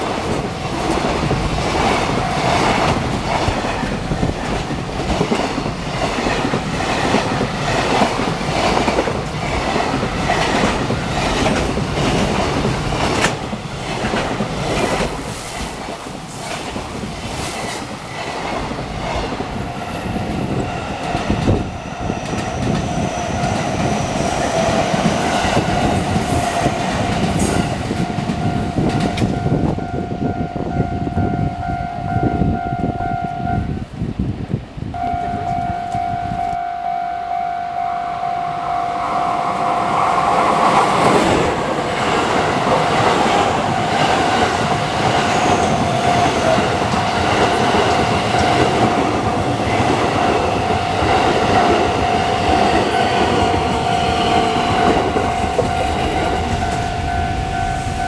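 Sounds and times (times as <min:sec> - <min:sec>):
train wheels clattering over rail joints: 0:00.0 - 0:29.8
level crossing warning bell: 0:14.4 - 0:33.8, 0:34.9 - 0:58.0.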